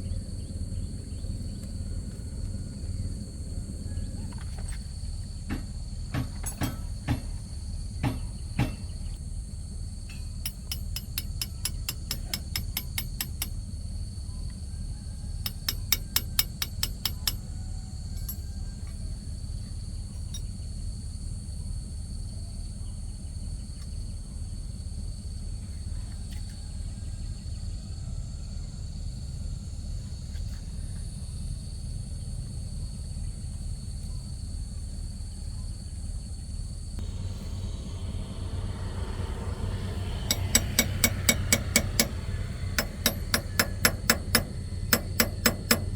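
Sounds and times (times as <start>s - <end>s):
low hum: 0.0s - 11.1s, 36.9s - 45.9s
hammer knocks and taps: 5.5s - 7.3s, 8.0s - 8.9s, 40.3s - 42.2s, 42.8s - 45.9s
high whine: 37.0s - 45.9s.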